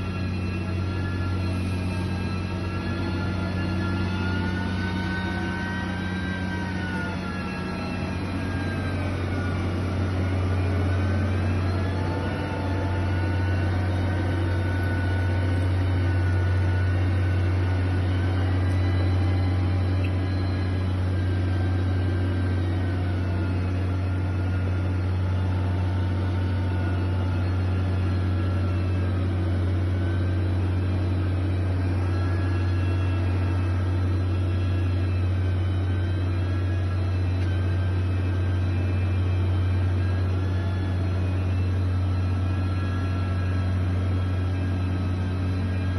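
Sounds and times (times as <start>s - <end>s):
heavy machine engine droning: 0.0s - 45.9s.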